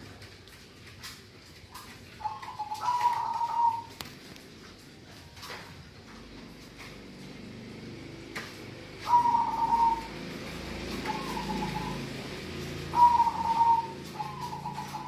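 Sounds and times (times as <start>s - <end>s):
dove cooing: 1.8s - 4.0s, 9.0s - 15.0s.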